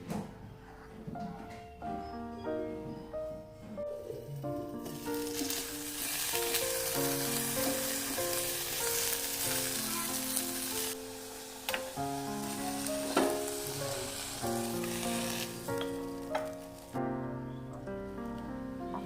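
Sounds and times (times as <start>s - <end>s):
gentle melody of held notes: 1.2s - 19.0s
food sizzling in hot oil: 4.7s - 17.0s.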